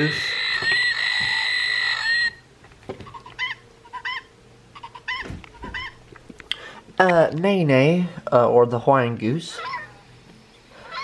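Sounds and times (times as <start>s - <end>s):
goose call through small speaker: 0.0s - 2.4s.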